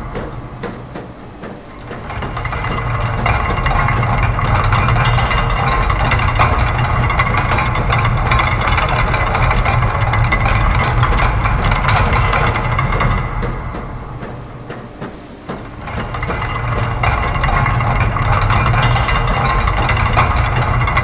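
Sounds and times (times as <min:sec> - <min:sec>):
gears and ratchets clattering: 0:00.0 - 0:21.0
low mechanical hum: 0:00.0 - 0:21.0.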